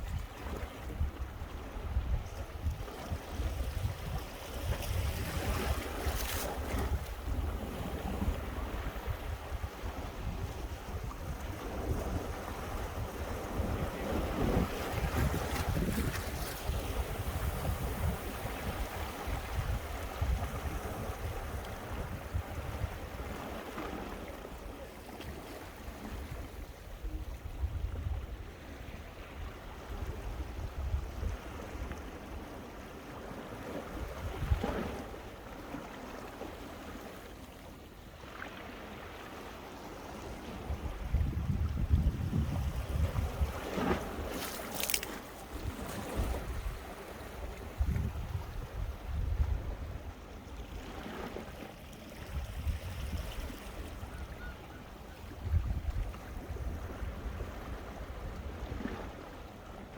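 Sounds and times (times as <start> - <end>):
wind gusting on microphone: 0.0 - 23.9, 33.9 - 35.0, 40.6 - 50.1, 55.3 - 59.3
waves breaking on rocks: 42.9 - 47.8.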